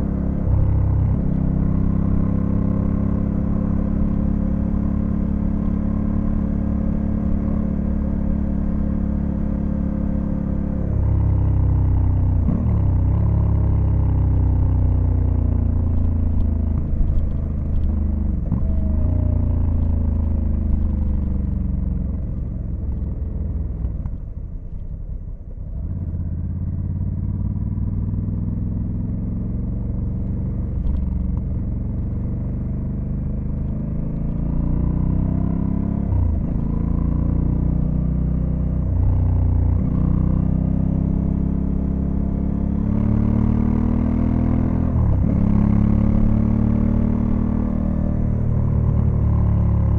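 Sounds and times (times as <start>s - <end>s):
motorcycle engine while riding: 0.0s - 49.9s.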